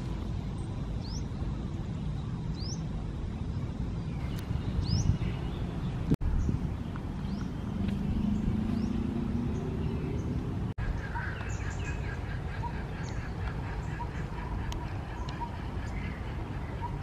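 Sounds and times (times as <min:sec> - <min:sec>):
low outdoor rumble: 0:00.0 - 0:17.0
birds chirping and calling: 0:04.0 - 0:17.0.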